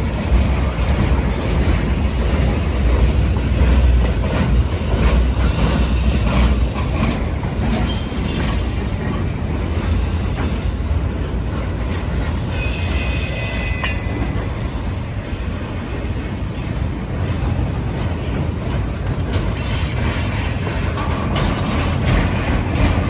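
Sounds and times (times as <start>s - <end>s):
freight train rolling past: 0.0s - 23.0s
high wheel squeal: 2.7s - 6.7s, 7.8s - 10.9s, 12.4s - 14.4s, 19.5s - 21.4s.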